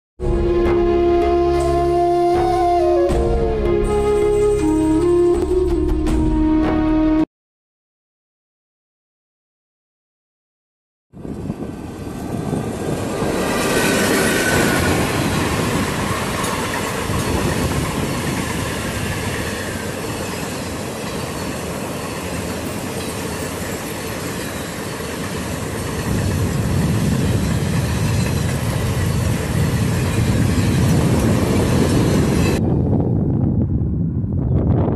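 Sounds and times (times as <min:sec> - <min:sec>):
train passing at speed: 0:11.2 - 0:34.5.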